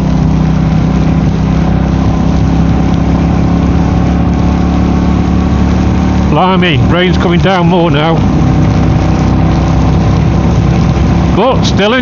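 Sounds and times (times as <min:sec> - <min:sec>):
motorcycle engine cruising: 0:00.0 - 0:12.0
wet road noise: 0:00.0 - 0:12.0.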